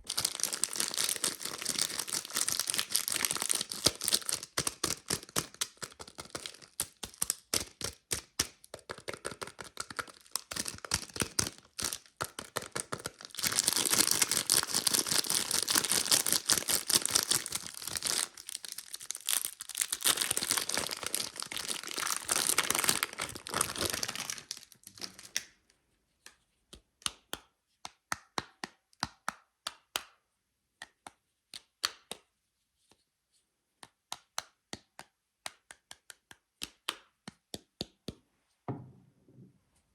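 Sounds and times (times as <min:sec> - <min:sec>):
wrapper tearing and crinkling: 0:00.0 - 0:07.9, 0:09.2 - 0:25.5.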